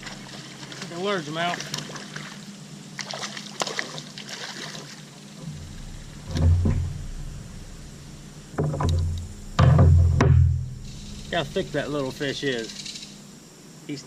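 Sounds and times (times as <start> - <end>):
thumps against a kayak: 5.4 - 7.9, 8.5 - 11.8
sharp clicks and knocks: 5.4 - 12.0.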